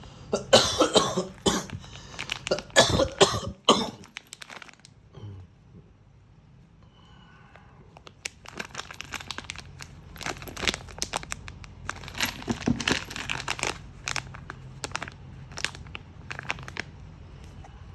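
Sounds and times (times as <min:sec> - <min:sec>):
steady low hum: 0:00.0 - 0:17.9
plastic packaging crinkling: 0:01.1 - 0:05.0, 0:07.9 - 0:17.0.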